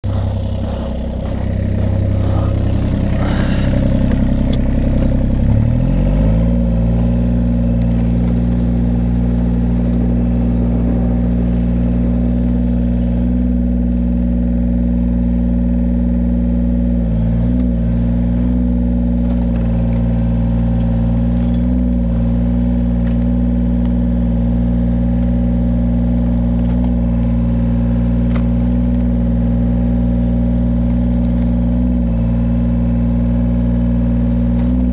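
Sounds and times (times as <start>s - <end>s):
excavator diesel engine speeding up: 0.0s - 14.5s.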